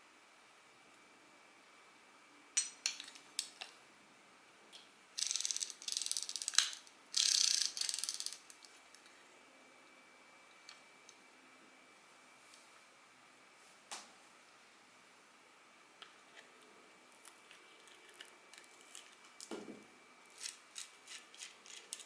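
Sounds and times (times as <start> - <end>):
metal reel ratcheting clicks: 5.2 - 8.8, 20.3 - 22.0.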